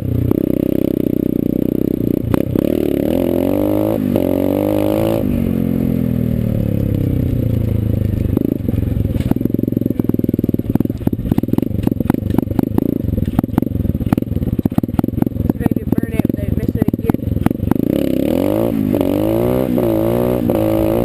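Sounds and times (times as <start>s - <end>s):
dirt bike engine revving: 0.0s - 6.9s, 7.6s - 21.0s
sharp clicks and rattles: 6.3s - 18.3s.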